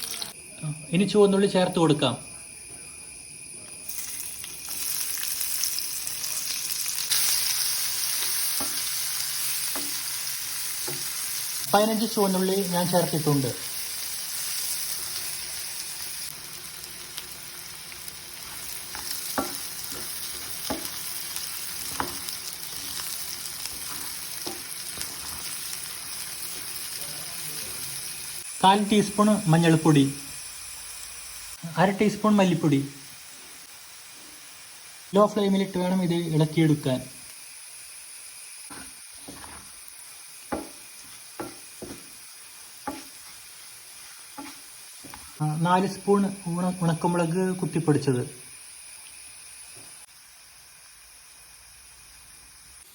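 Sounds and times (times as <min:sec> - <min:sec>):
shallots sizzling in hot oil: 0:00.0 - 0:52.9
spoon scraping a pan: 0:18.3 - 0:26.8, 0:38.7 - 0:39.7, 0:42.8 - 0:45.4
spoon knocking against pan: 0:19.0 - 0:21.0, 0:40.5 - 0:40.8, 0:41.4 - 0:42.0.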